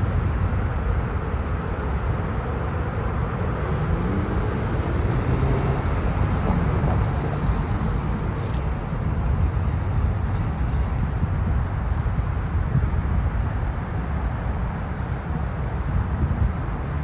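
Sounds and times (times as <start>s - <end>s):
road and tyre rumble: 0.0s - 17.0s
car engine accelerating: 3.1s - 8.8s.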